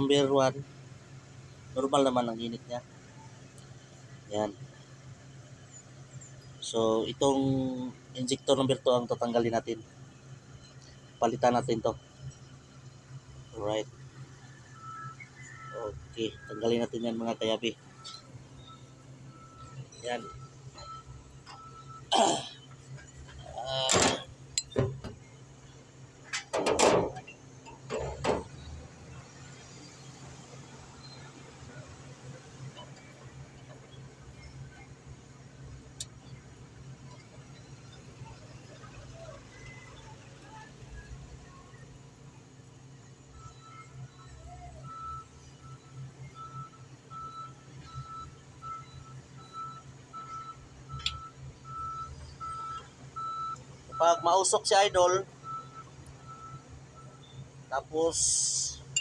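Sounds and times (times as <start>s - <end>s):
reversing alarm beeping: 10.5s - 25.0s, 43.3s - 59.0s
metal tools clinking on engine: 23.8s - 25.1s, 26.2s - 28.5s.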